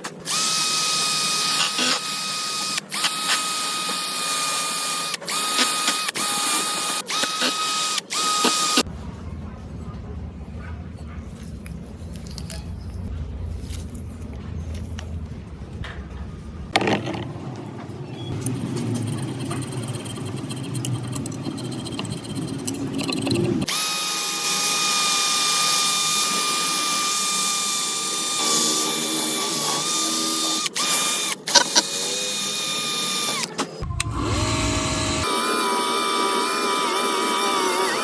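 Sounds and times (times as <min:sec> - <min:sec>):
electric power tool whining: 0:00.3 - 0:08.9, 0:23.6 - 0:38.0
scraping and rubbing: 0:10.9 - 0:15.3, 0:18.4 - 0:23.7.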